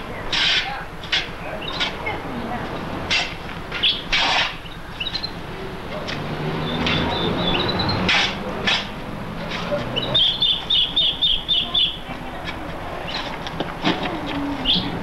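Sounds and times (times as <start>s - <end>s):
scraping of digging in soil: 3.1s - 4.7s, 8.0s - 10.8s
small bird chirping: 3.8s - 5.4s, 6.6s - 8.1s, 9.9s - 12.4s.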